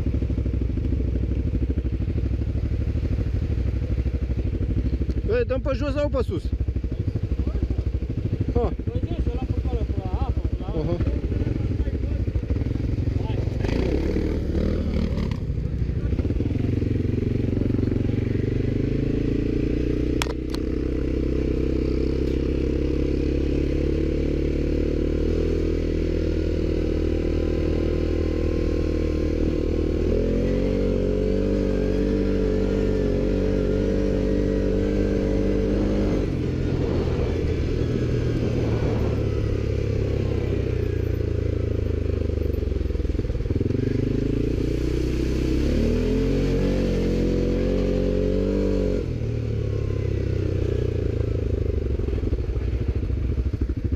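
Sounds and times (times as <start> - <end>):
atv engine running: 0.0 - 53.9
sharp click: 20.2 - 20.6.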